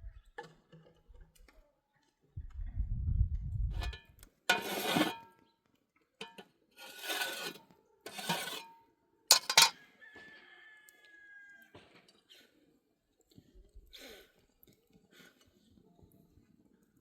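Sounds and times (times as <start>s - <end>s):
metal dishes clinking: 3.8s - 5.2s, 6.2s - 8.7s, 9.3s - 9.8s
metal dishes scraping: 3.8s - 5.3s, 6.2s - 8.7s, 9.3s - 9.8s
metal dish ringing: 9.3s - 9.8s.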